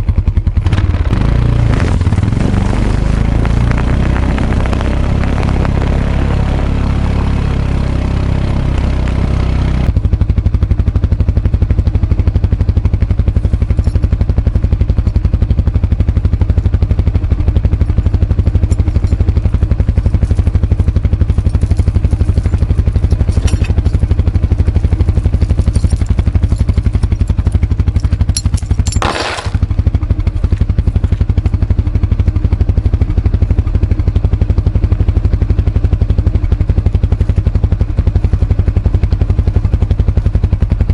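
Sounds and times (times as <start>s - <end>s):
atv engine running: 0.0s - 40.9s
clattering scraping burst: 28.9s - 29.6s.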